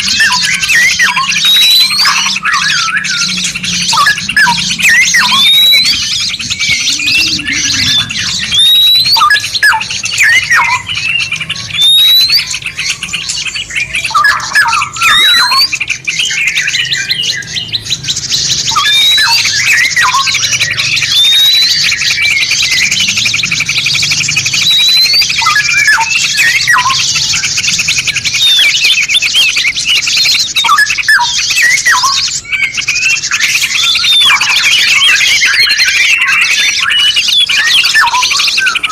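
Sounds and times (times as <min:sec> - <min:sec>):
high chattering birdsong: 0:00.0 - 0:38.9
songbirds singing: 0:00.0 - 0:38.9
steady low hum: 0:02.8 - 0:10.1.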